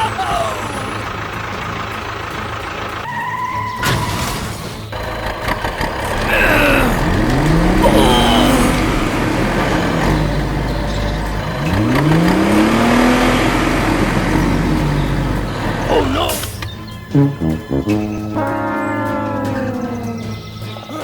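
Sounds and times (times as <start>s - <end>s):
small tractor engine revving: 4.9s - 20.4s.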